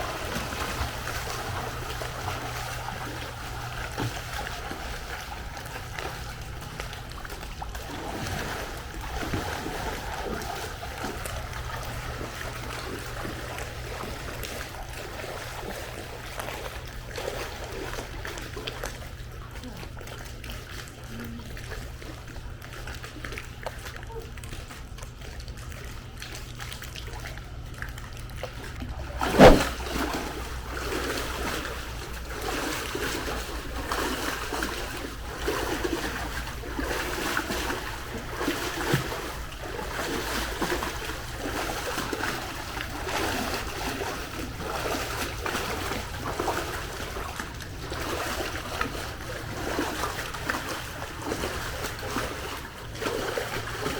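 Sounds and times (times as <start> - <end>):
pool water splashing: 0.0 - 53.9
loud splash: 29.0 - 30.2.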